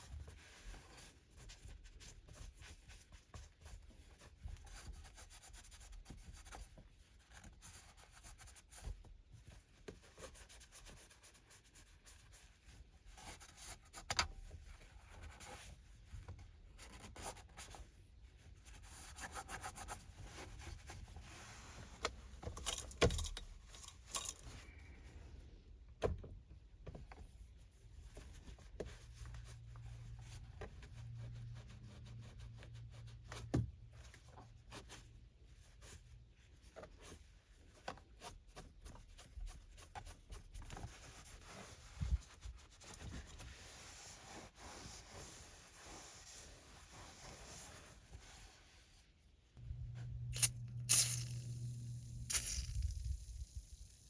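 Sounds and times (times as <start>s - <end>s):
cloth wiping surfaces: 14.6s - 22.4s, 38.4s - 52.4s
low steady hum: 48.7s - 54.0s.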